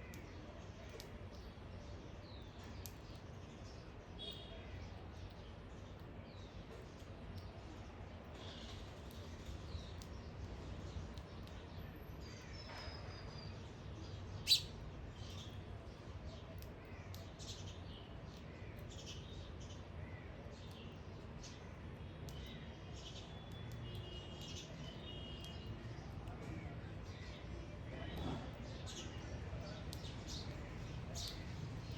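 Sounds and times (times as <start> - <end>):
birds chirping: 12.4 - 26.3, 27.0 - 31.9.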